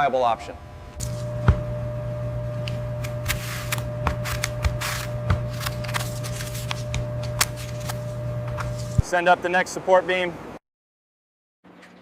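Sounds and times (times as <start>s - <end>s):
low machinery hum: 0.0s - 9.1s.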